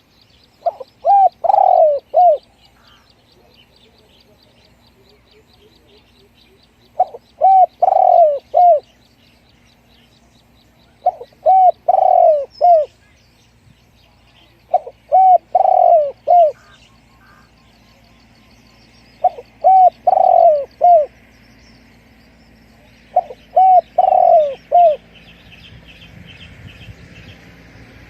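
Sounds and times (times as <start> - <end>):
small birds chirping: 0.0 - 28.0
dove cooing: 0.6 - 4.0, 5.0 - 9.0, 10.9 - 13.0, 14.4 - 17.5, 19.2 - 21.2, 22.8 - 25.2.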